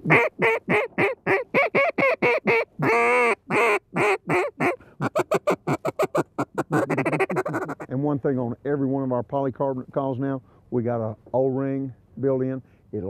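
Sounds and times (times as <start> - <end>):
duck call quacks: 0.0 - 7.9
duck call short clucks: 0.1 - 7.9.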